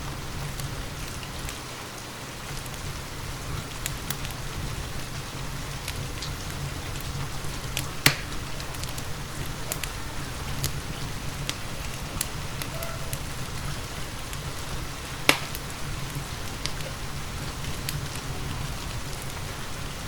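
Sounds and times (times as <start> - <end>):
rain hissing: 0.0 - 20.0
wood fire crackling: 0.0 - 20.0.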